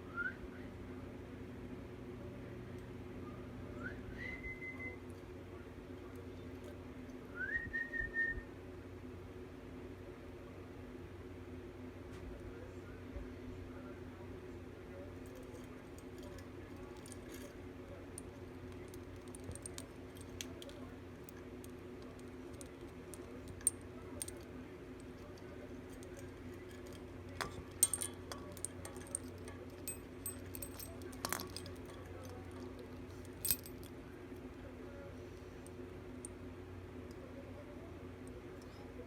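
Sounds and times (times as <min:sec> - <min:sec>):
steady hum: 0:14.7 - 0:39.0
small metallic clinks and jingles: 0:15.1 - 0:34.6.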